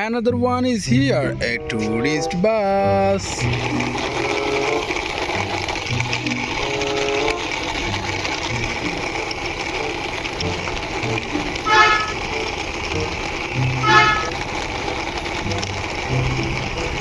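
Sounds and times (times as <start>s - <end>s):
steady background hum: 1.1s - 17.0s
bus horn toots: 1.4s - 5.0s, 6.5s - 7.7s, 9.7s - 15.5s.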